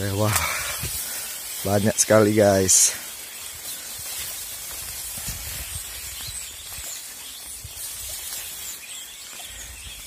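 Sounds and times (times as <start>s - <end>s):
flock of small birds chirping: 0.0s - 10.0s
steady outdoor hiss: 0.0s - 10.0s
wind rumble on microphone: 4.0s - 8.6s.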